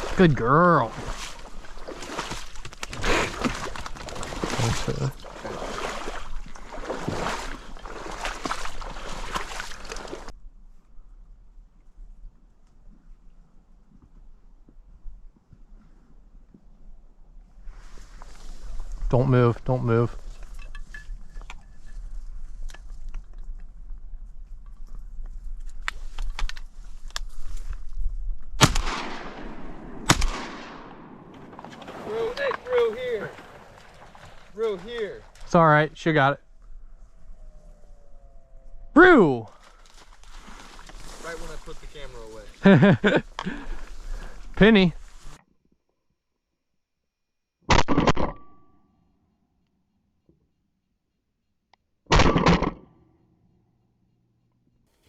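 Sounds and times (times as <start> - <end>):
splashing shallow water: 0.0 - 10.3, 31.4 - 35.6, 39.6 - 44.5
shotgun shots with echo: 28.6 - 31.6, 52.1 - 52.8
rustling: 39.5 - 45.4.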